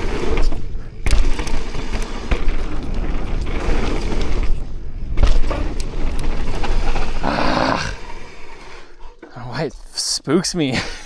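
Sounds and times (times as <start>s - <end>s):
bike tyre and frame rattle: 0.0s - 9.9s
low rumble of tyres: 0.0s - 9.9s.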